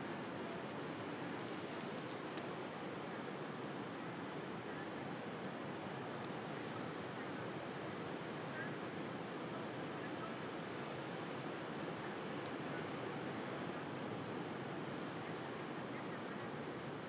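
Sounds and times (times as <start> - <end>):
bonfire crackling: 0.8 - 3.0.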